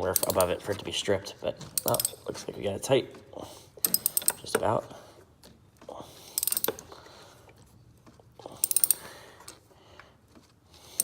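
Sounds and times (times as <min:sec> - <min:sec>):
hand ratchet clicking: 0:00.0 - 0:00.6, 0:01.8 - 0:02.3, 0:03.8 - 0:04.7, 0:06.3 - 0:06.9, 0:08.5 - 0:09.1.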